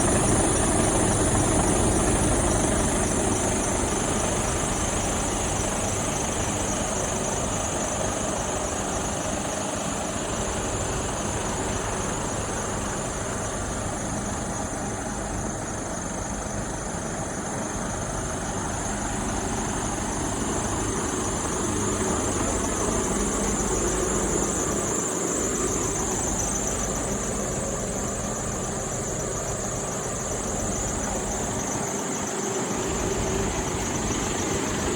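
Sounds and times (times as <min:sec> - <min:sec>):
truck diesel engine running: 0:10.2 - 0:34.9.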